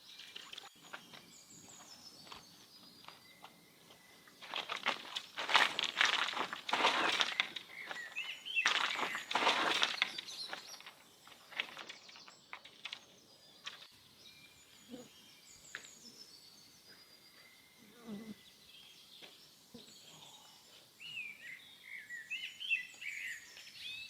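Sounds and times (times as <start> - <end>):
birds chirping: 0.0 - 24.0
rough scuffing noise: 0.7 - 12.5.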